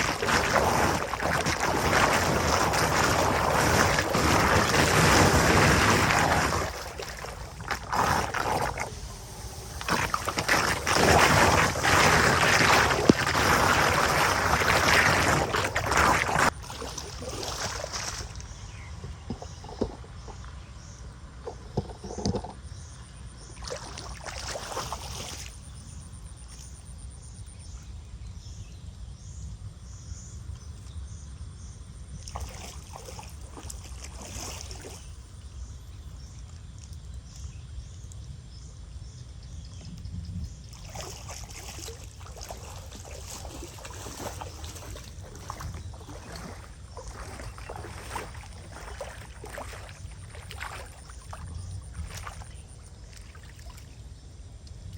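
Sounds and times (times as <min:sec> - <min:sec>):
water sloshing and splashing: 0:00.0 - 0:20.7, 0:23.5 - 0:25.8, 0:32.2 - 0:38.2, 0:40.5 - 0:54.9.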